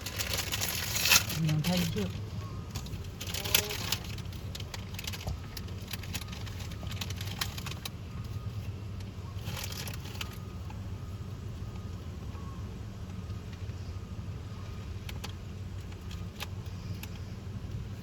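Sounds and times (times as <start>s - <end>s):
snack bag crackling: 0.0s - 2.1s, 2.9s - 7.8s
vehicle idling hum: 0.0s - 18.0s.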